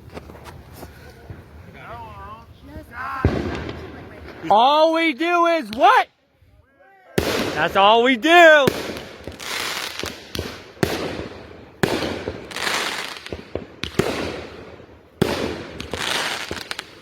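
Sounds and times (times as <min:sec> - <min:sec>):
firework bangs: 0:03.0 - 0:06.0, 0:07.2 - 0:17.0
firework crackle: 0:07.2 - 0:17.0.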